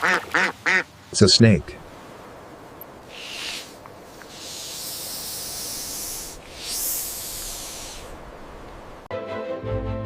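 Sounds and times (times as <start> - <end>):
snake hissing: 3.0 - 8.3.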